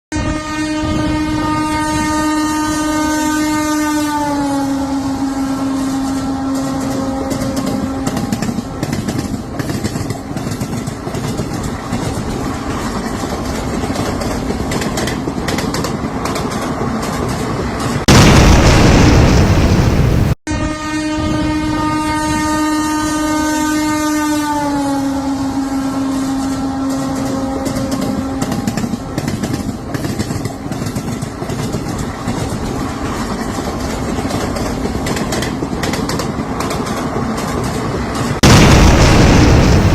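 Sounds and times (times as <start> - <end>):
train horn: 0.1 - 8.8, 20.5 - 29.1
moving train rumble: 0.1 - 39.9
loud burst of noise: 18.1 - 20.4, 38.4 - 39.9.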